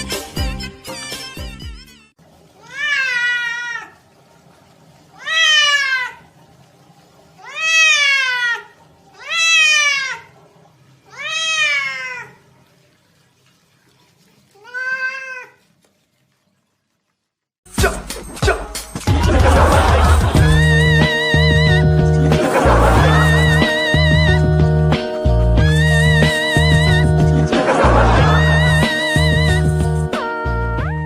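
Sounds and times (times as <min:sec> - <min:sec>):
cat meowing: 0:02.6 - 0:04.0, 0:05.2 - 0:06.2, 0:07.4 - 0:10.4, 0:11.1 - 0:12.5, 0:14.6 - 0:15.6.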